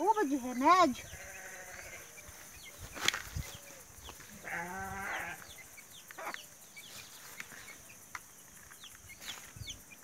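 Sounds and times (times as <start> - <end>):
small birds chirping: 0.0 - 10.0
farm animal calling: 0.2 - 6.6.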